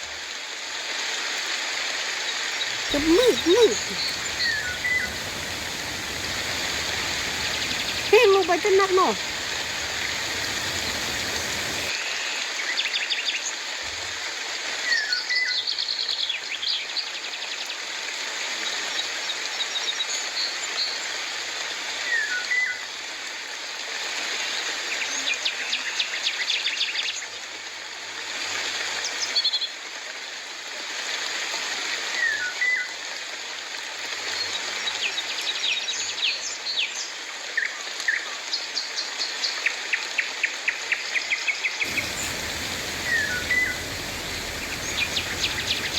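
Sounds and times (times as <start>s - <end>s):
rain hiss: 0.0s - 12.6s, 41.8s - 45.9s
birds chirping: 2.9s - 11.9s, 41.9s - 45.9s.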